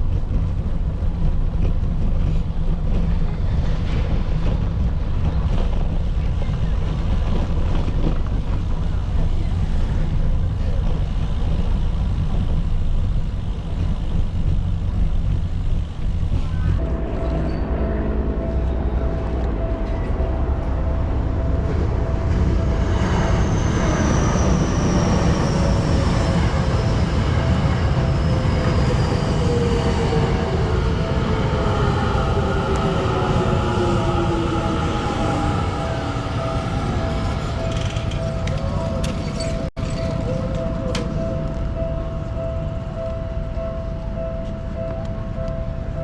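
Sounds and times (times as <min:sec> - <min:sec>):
traffic noise: 0:00.0 - 0:46.0
wind rumbling on microphone: 0:00.0 - 0:46.0
passing vehicle whine: 0:16.8 - 0:46.0.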